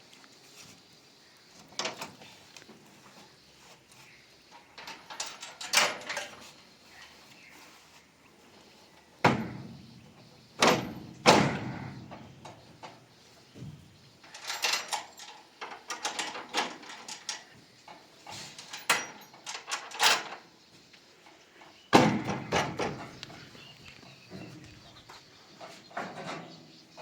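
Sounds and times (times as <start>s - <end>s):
loud knocks: 21.9s - 23.1s.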